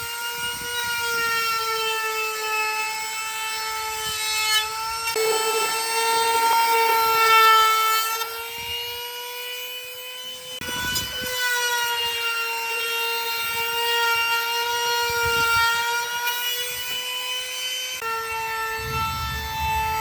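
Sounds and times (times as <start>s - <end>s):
power tool whine: 0.0s - 20.0s
rough scraping: 18.6s - 20.0s.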